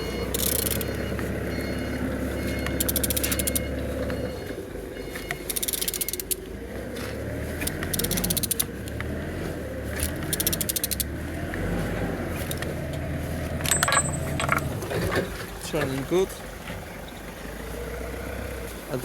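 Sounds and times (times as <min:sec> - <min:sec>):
engine crank scraping rumble: 0:00.0 - 0:17.4
ratchet wrench clicking: 0:00.3 - 0:00.9, 0:02.8 - 0:03.7, 0:05.5 - 0:06.4, 0:07.6 - 0:08.7, 0:10.0 - 0:11.1
sharp metallic knocks: 0:13.6 - 0:16.0.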